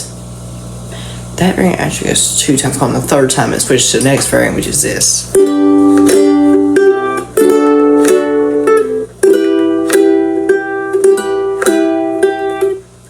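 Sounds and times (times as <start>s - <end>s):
ukulele strumming: 5.3s - 13.0s.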